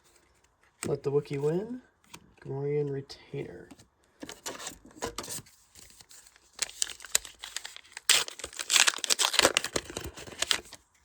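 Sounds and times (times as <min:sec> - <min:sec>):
foil wrapper crinkling: 0:05.8 - 0:10.9.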